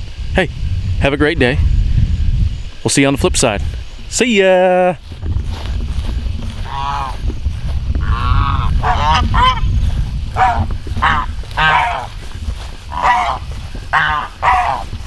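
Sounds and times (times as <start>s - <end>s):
low rumble: 5.0s - 15.0s
geese honking: 5.8s - 15.0s.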